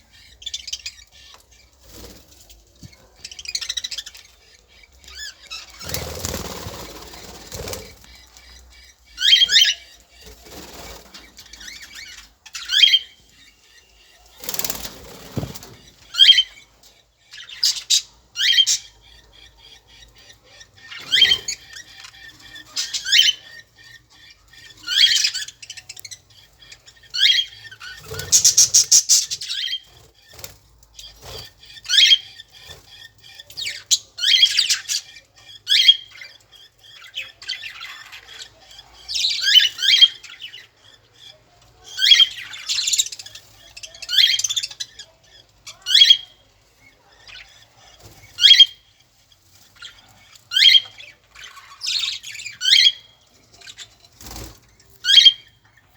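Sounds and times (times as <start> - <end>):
birds squawking: 0.0 - 49.0, 49.6 - 55.9
rapid rattling bird call: 26.8 - 30.4.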